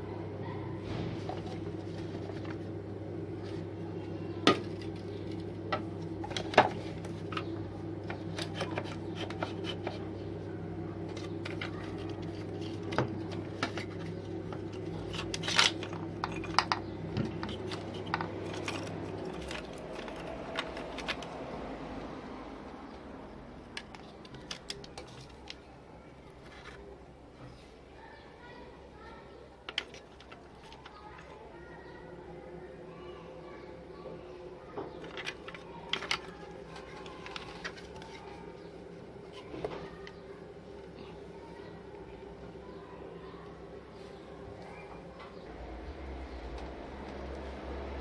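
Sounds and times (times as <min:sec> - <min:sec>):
small hard objects clicking: 0:14.6 - 0:21.4.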